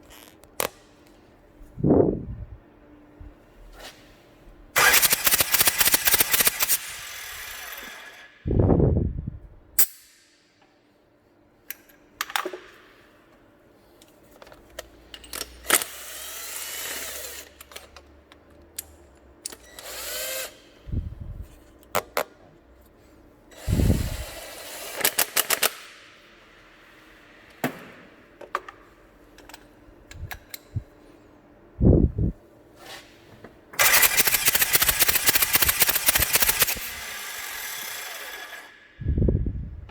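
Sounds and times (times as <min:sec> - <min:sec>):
diesel engine cranking: 0:33.8 - 0:38.6.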